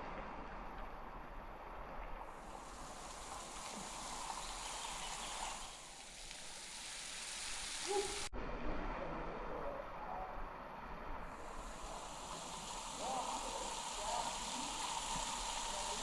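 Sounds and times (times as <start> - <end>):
waterfall splashing into pool: 2.2 - 8.3, 11.4 - 16.0.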